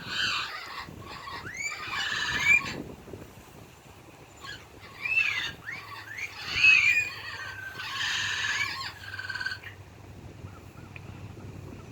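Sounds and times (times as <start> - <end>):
parrots whistling and squawking: 0.0 - 2.8, 4.4 - 9.8.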